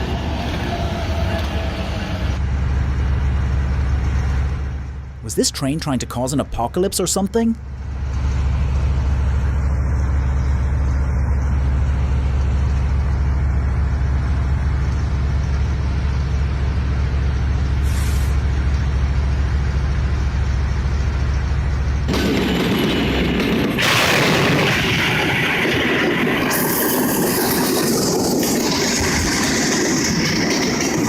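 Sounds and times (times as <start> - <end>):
heavy vehicle engine rumble: 0.0 - 31.0
brief high hiss: 17.8 - 18.4.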